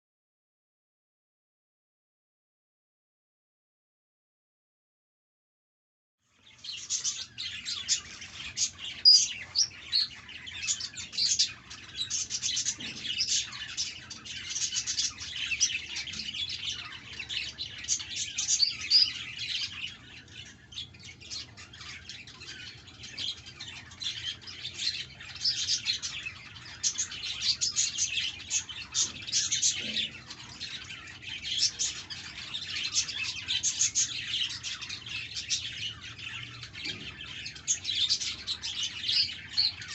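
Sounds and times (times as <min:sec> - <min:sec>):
budgerigars chirping: 0:06.5 - 0:39.9.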